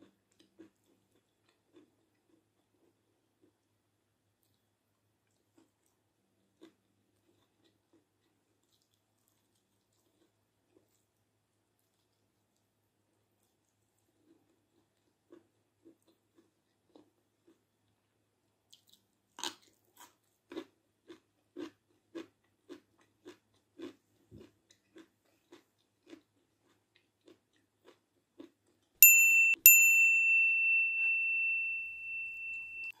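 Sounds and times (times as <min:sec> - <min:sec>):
crisp crunch of a bite: 0:18.7 - 0:28.9
high ringing chime: 0:29.0 - 0:33.0.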